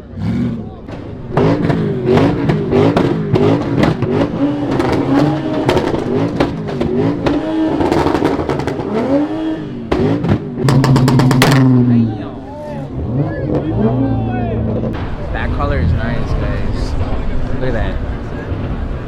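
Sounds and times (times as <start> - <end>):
car engine revving: 0.0 - 19.0
sharp cracks: 0.9 - 9.2, 9.9 - 11.9.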